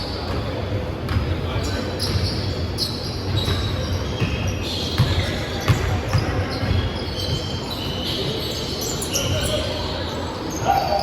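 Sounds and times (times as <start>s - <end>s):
basketball bouncing: 1.0s - 1.4s, 5.0s - 7.4s
shoe squeaks on court: 1.1s - 9.8s.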